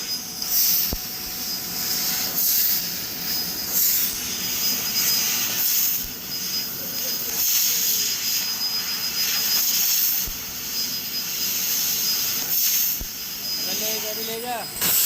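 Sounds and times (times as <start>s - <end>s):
laser cutter gas jet hiss: 0.0s - 15.0s
thin high whine: 0.0s - 15.0s.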